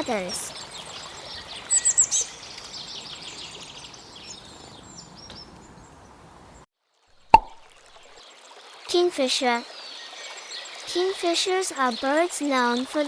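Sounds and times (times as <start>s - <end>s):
songbirds chirping: 0.0s - 6.6s.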